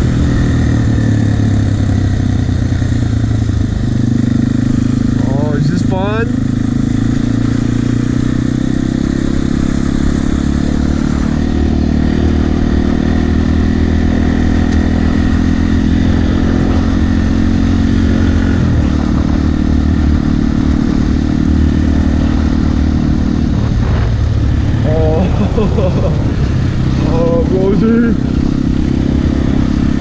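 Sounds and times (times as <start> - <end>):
dirt bike engine running: 0.0 - 30.0.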